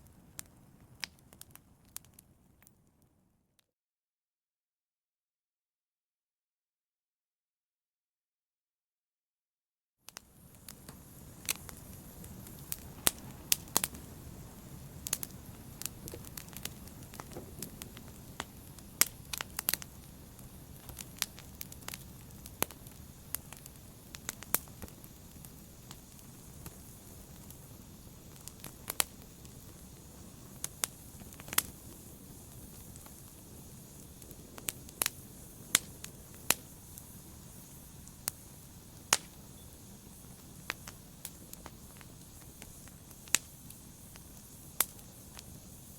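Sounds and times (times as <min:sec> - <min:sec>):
fire crackling and popping: 0:00.0 - 0:03.2, 0:10.1 - 0:45.9
flames rushing: 0:10.2 - 0:45.9.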